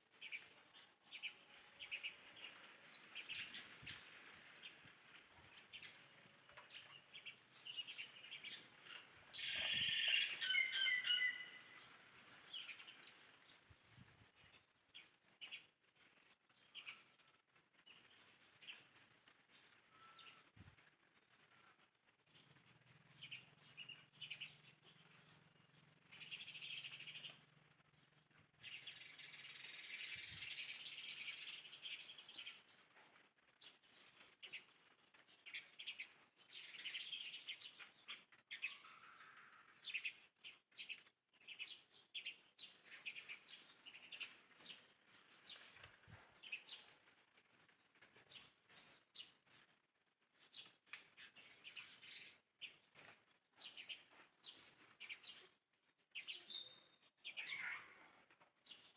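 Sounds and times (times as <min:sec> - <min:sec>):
birds chirping: 0:05.5 - 0:13.7, 0:56.2 - 0:58.9.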